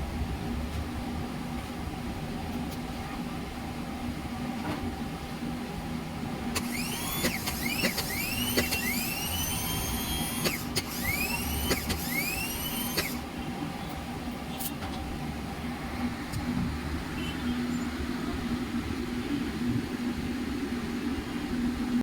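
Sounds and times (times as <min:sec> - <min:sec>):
steady low hum: 0:00.0 - 0:22.0
starter motor whining: 0:06.5 - 0:13.3.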